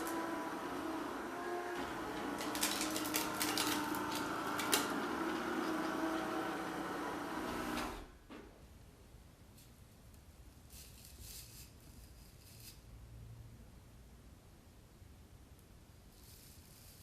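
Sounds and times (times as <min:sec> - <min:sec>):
cordless sweeper brush humming: 0:00.0 - 0:08.0.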